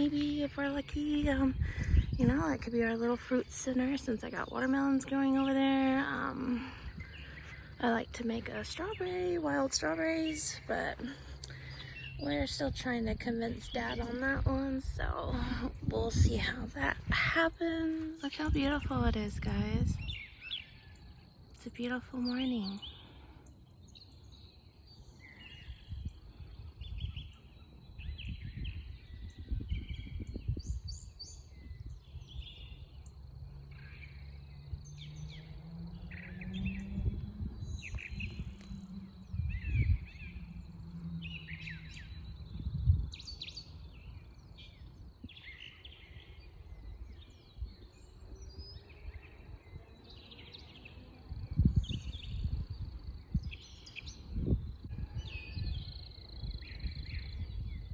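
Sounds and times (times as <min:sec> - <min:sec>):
songbirds chirping and singing: 0:00.0 - 0:57.9
low hum: 0:31.7 - 0:48.4.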